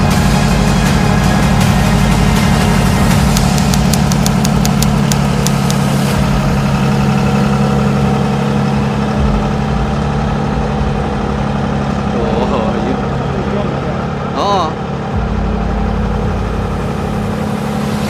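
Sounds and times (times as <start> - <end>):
heavy diesel engine running: 0.0 - 18.0
sharp clicks: 3.3 - 5.8.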